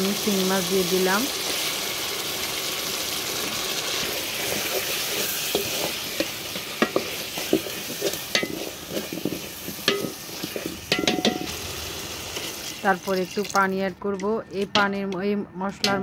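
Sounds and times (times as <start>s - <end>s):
fish sizzling in hot oil: 0.0s - 13.7s
stirring clacks against pot: 4.4s - 11.6s.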